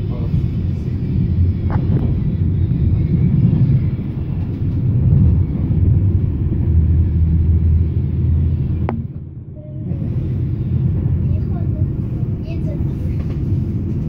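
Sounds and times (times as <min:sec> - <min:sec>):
train running rumble: 0:00.0 - 0:14.0.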